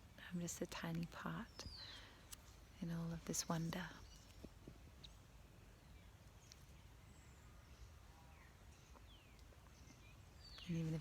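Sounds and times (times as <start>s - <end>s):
faint bird chirps: 1.0s - 11.0s.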